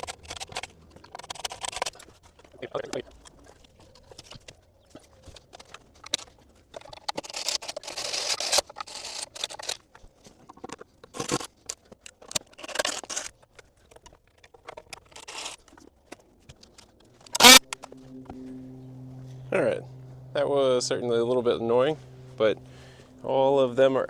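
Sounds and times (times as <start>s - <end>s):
screws scraping out of wood: 7.0s - 9.8s, 17.2s - 17.9s.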